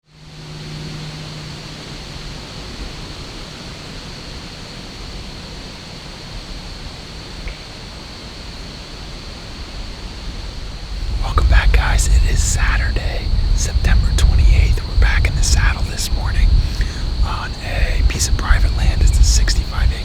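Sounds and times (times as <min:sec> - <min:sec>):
wind through woods: 0:01.1 - 0:20.0
low hum: 0:10.9 - 0:20.0.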